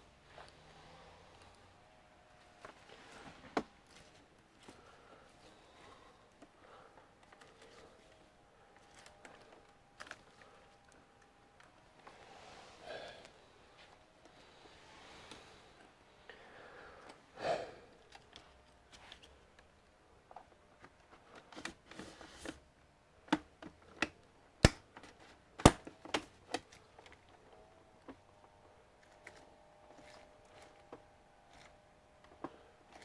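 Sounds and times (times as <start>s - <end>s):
clicks and taps of parts: 23.3s - 26.7s.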